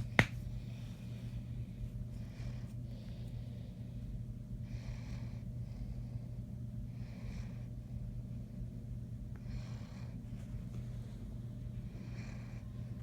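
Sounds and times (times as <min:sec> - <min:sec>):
steady low hum: 0:00.0 - 0:13.0
dog snoring: 0:11.9 - 0:12.7.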